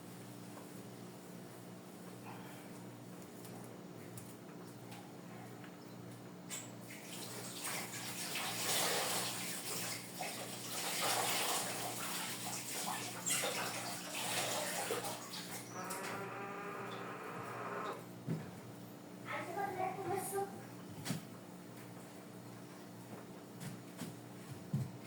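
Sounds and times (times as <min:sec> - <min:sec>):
water running from a tap: 0:06.9 - 0:16.0.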